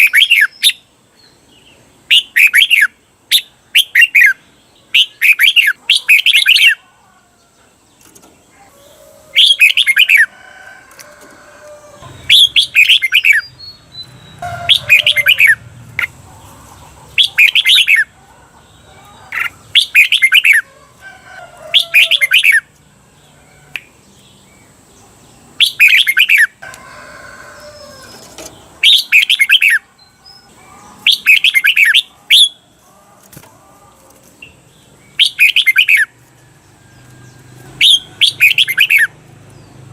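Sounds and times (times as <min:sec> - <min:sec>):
bulbul singing: 0:12.0 - 0:20.7, 0:21.6 - 0:26.8, 0:27.6 - 0:32.8, 0:34.4 - 0:39.9.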